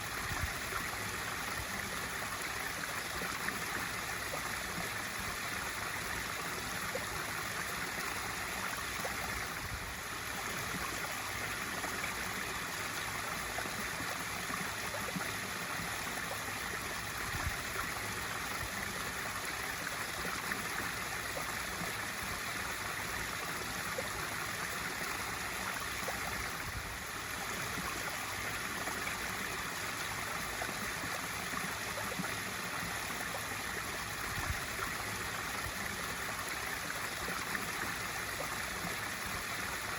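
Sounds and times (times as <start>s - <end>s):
water pouring into pool: 0.0s - 39.9s.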